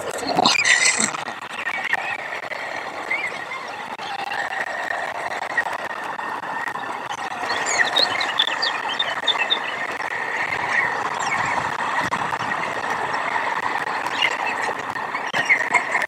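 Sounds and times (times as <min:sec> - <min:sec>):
outdoor background noise: 0:00.0 - 0:16.0
small bird chirping: 0:07.4 - 0:09.9.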